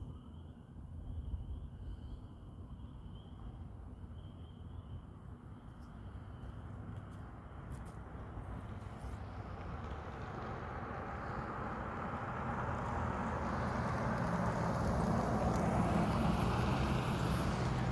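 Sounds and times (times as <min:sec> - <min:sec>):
road noise: 0:05.8 - 0:17.9
motor vehicle approaching: 0:08.6 - 0:17.9.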